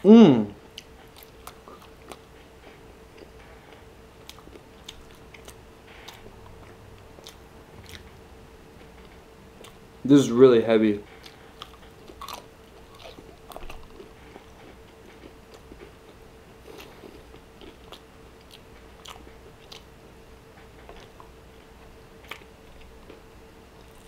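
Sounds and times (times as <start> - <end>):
crunchy chewing: 0.7 - 8.2, 11.0 - 24.0.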